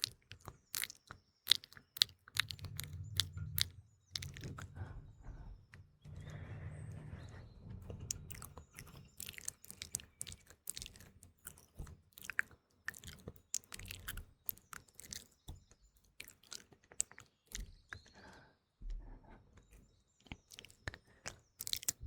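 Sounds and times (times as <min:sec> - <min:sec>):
wet mouth clicks and smacks: 0:00.0 - 0:04.7, 0:08.2 - 0:17.7, 0:20.4 - 0:22.0
faint birdsong: 0:00.0 - 0:22.0.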